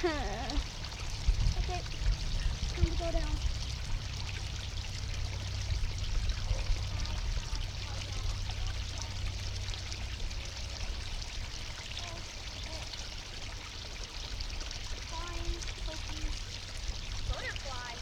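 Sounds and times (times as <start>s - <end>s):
creek rushing water: 0.0s - 18.0s
small waterfall: 0.0s - 18.0s.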